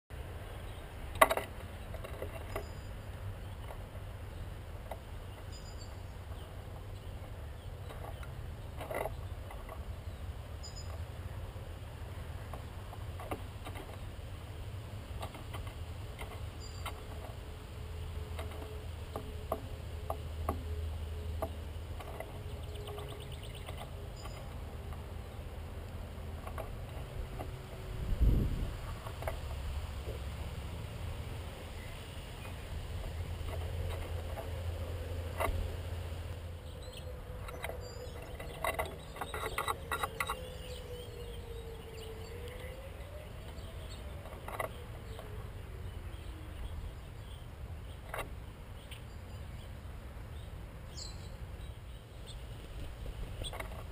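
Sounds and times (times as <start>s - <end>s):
birds tapping and clicking: 0.1s - 53.9s
faint high bird chirps: 5.3s - 8.3s, 10.1s - 11.0s
wind rumble on microphone: 21.3s - 48.2s.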